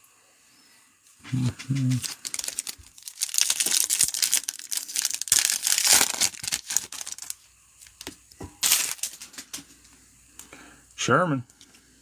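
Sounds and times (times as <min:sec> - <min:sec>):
foil wrapper tearing and crinkling: 0:01.7 - 0:09.6.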